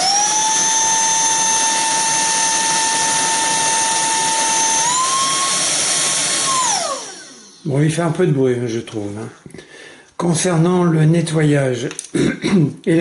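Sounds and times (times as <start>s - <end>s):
handheld vacuum cleaner motor whine: 0.0s - 7.7s.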